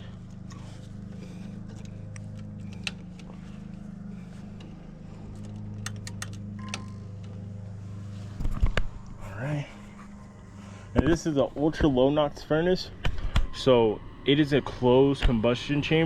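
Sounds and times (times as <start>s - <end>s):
gas furnace humming: 0.0s - 16.0s
tools and wiring clicking: 0.2s - 3.8s, 4.6s - 7.6s.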